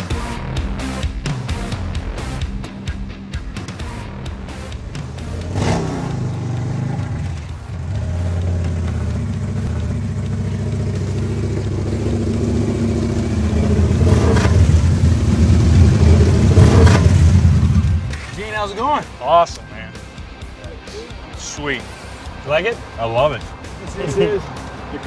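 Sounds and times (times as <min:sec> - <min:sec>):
motorcycle engine revving: 0:03.7 - 0:18.4.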